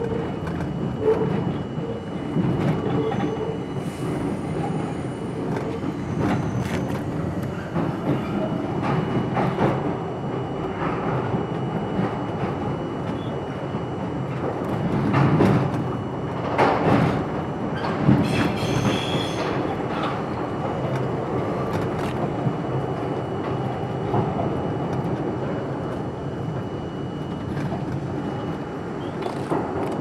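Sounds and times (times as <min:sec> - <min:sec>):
subway train wheels rumbling: 0:00.0 - 0:30.0
high wheel squeal: 0:18.2 - 0:19.7.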